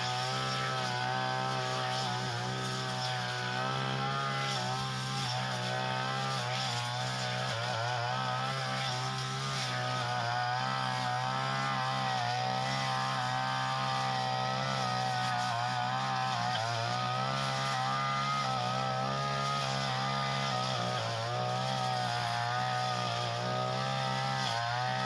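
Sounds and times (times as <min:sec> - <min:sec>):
grass cutter engine running: 0:00.0 - 0:25.0.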